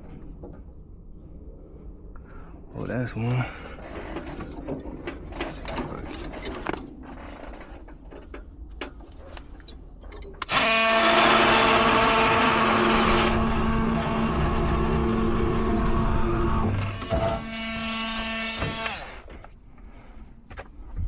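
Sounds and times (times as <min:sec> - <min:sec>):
oscillating multi-tool cutting pipe: 0:10.4 - 0:19.3.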